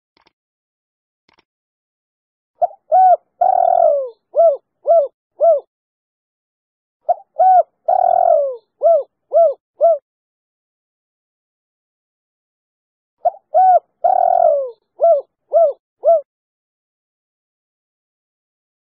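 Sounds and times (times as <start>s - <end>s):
dove cooing: 2.6s - 5.7s, 7.1s - 10.0s, 13.2s - 16.3s.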